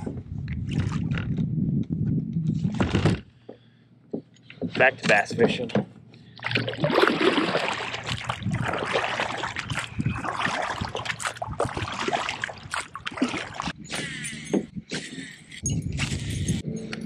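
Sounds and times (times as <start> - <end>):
water splashing around kayak: 6.4 - 13.8.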